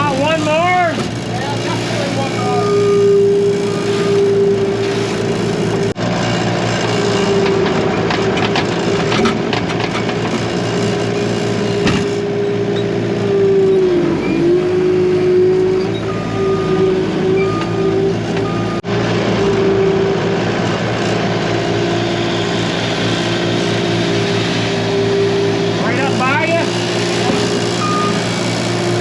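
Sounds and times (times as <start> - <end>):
vehicle engine running: 0.0 - 29.0
reversing beeper: 2.0 - 5.2, 12.7 - 20.0, 26.0 - 28.5.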